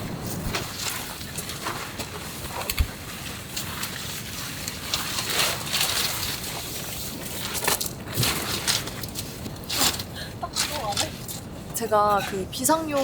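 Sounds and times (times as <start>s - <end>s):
gusting wind: 0.0s - 13.0s.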